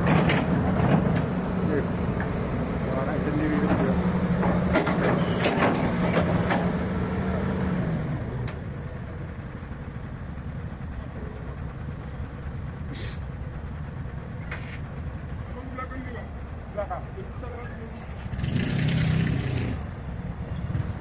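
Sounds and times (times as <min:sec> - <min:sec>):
diesel truck engine labouring: 0:00.0 - 0:21.0
short hiss: 0:12.9 - 0:13.3.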